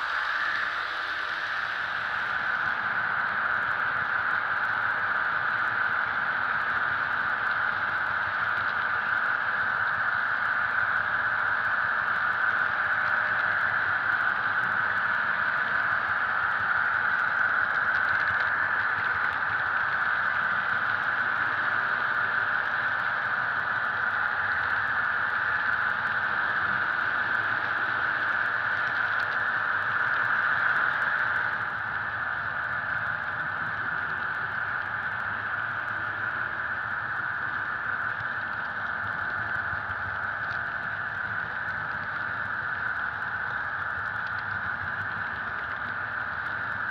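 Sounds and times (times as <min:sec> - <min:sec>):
model train whirring on track: 0:00.0 - 0:46.9
faint clicks: 0:37.5 - 0:46.8.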